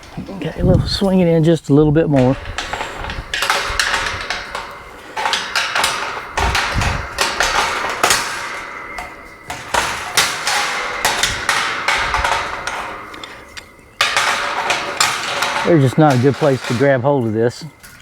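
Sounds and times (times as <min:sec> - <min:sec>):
metal gate hinge clanking: 0:00.0 - 0:18.0.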